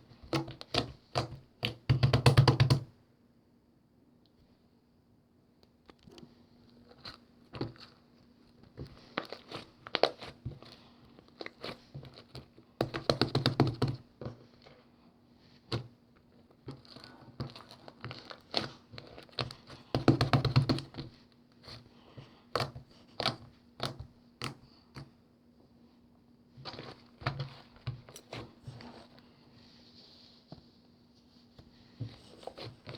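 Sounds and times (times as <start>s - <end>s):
hands squishing slime: 6.9s - 14.7s, 16.7s - 25.1s.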